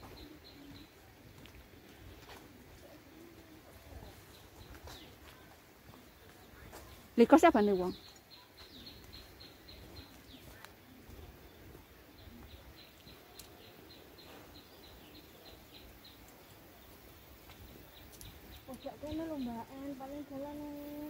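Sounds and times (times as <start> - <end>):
quiet woodland background: 0.0 - 21.0.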